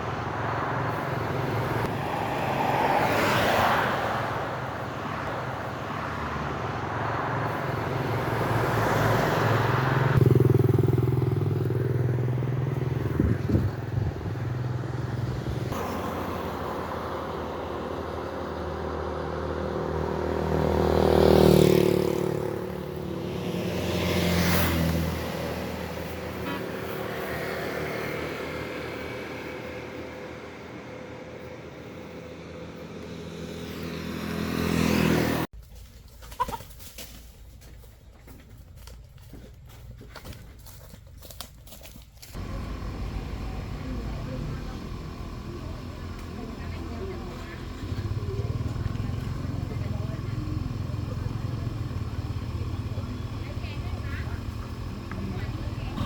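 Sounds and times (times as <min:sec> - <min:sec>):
vehicles passing by: 0:00.0 - 0:56.0
low engine drone: 0:42.4 - 0:56.0.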